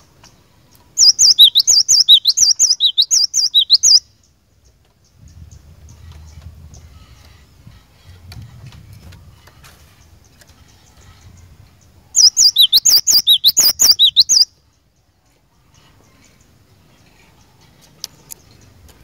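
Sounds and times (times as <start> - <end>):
faint bird chirps and ticks: 0.0 - 19.0
bird singing whistled notes: 1.0 - 4.4, 10.8 - 14.6.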